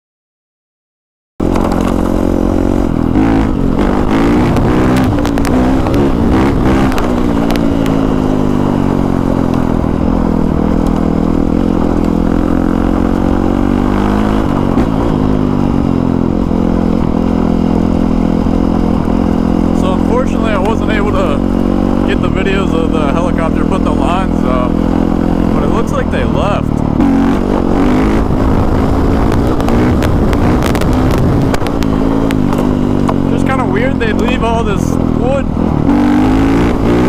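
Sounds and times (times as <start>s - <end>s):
engine clatter: 1.4s - 12.8s
motorcycle engine running: 1.4s - 37.0s.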